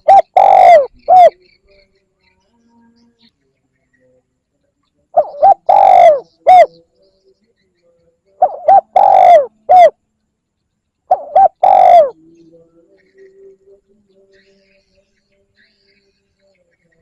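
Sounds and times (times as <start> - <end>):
dove cooing: 0.0 - 1.4, 5.2 - 6.7, 8.4 - 10.0, 11.1 - 12.2.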